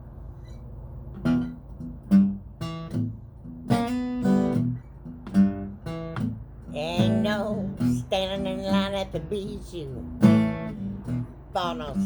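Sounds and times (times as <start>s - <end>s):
acoustic guitar strumming chords: 1.1s - 12.0s.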